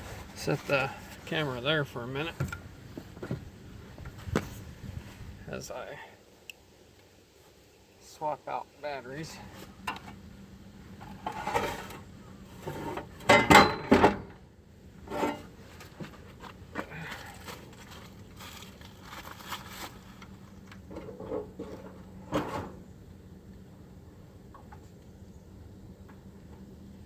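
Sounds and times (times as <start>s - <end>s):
battery clunking and scraping: 10.9s - 14.4s, 15.1s - 18.0s, 20.2s - 22.9s.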